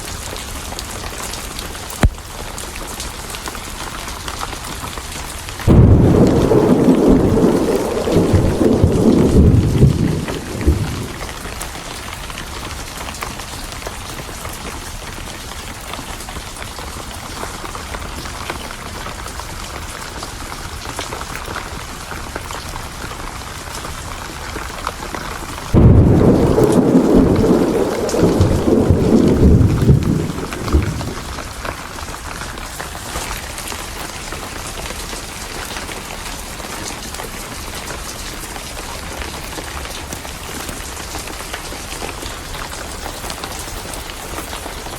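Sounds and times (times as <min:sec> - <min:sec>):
heavy rain: 0:00.0 - 0:44.9
thunder rumbling: 0:05.6 - 0:11.7, 0:25.6 - 0:32.1.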